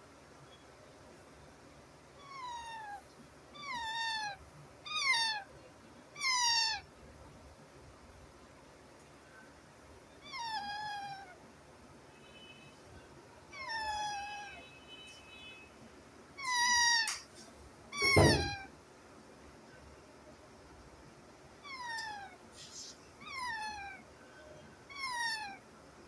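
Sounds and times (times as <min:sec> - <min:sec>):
young animal crying: 0:02.2 - 0:03.0, 0:03.6 - 0:05.5, 0:06.2 - 0:06.9, 0:10.2 - 0:11.4, 0:13.5 - 0:14.6, 0:16.4 - 0:17.2, 0:18.0 - 0:18.7, 0:21.6 - 0:22.4, 0:23.2 - 0:24.1, 0:24.9 - 0:25.7.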